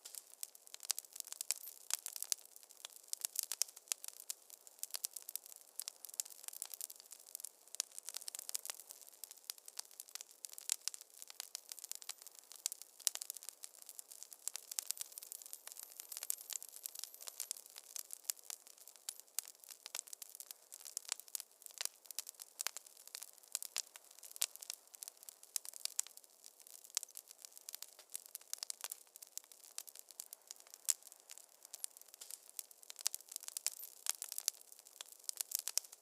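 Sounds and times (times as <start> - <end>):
wood fire crackling: 0.0 - 36.0.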